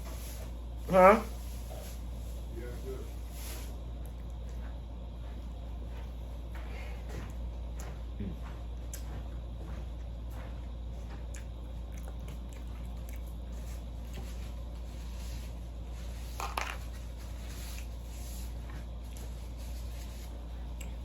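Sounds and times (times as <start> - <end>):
person chewing: 11.2 - 14.4, 20.6 - 21.0.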